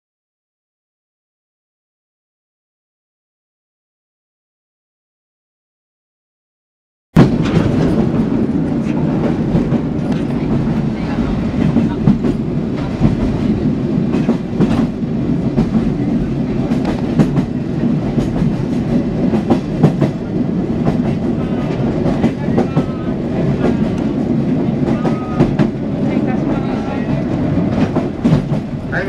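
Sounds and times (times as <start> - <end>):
wheels clacking over rail joints: 7.2 - 26.5
train rolling rumble: 7.2 - 29.0.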